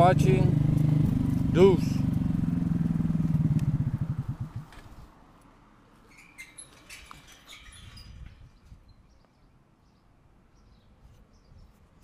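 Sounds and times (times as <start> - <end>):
low rumble: 0.0 - 4.7
faint birds chirping: 6.1 - 12.0.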